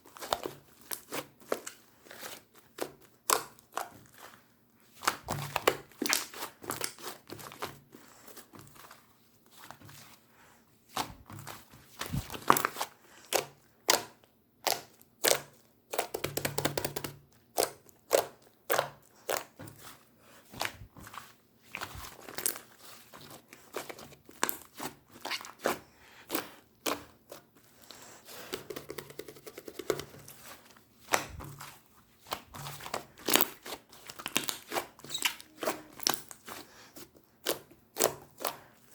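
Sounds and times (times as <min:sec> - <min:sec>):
slime squeezed by hand: 0:23.7 - 0:26.4, 0:32.3 - 0:36.6.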